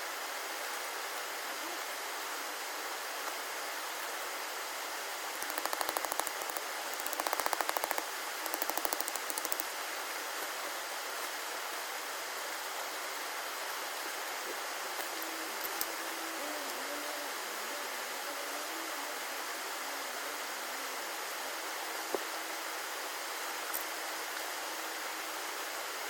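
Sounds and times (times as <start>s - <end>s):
steady rushing hiss: 0.0s - 26.0s
rapid clicking: 5.4s - 9.7s.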